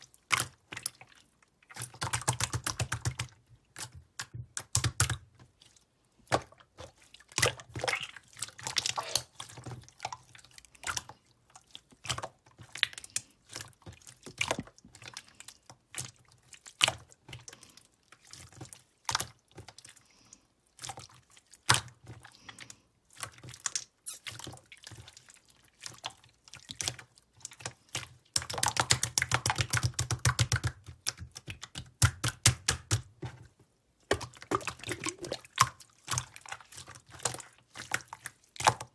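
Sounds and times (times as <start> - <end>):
sticky clicks and wet crackles: 0.1 - 20.0, 23.1 - 38.9
slime squished by hand: 7.8 - 9.5, 34.1 - 38.8.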